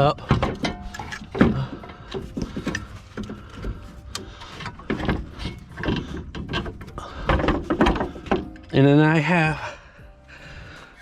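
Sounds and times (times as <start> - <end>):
tools knocking and clicking on metal: 0.2 - 8.8.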